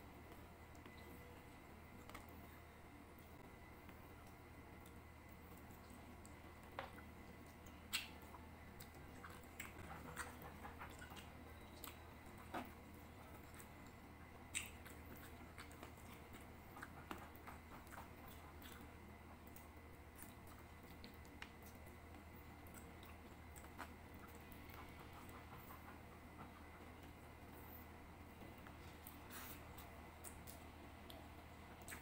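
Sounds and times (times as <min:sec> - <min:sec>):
person chewing: 0:07.4 - 0:22.0, 0:31.8 - 0:32.0.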